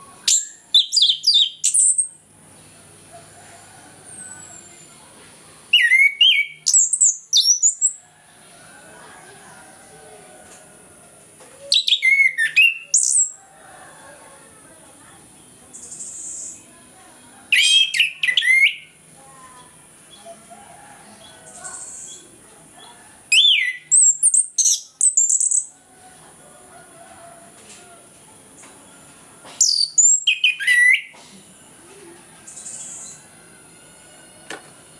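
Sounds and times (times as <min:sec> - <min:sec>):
thrush singing whistled phrases: 0:05.7 - 0:07.9, 0:11.7 - 0:13.4, 0:17.5 - 0:18.9, 0:23.3 - 0:25.7, 0:29.6 - 0:31.1.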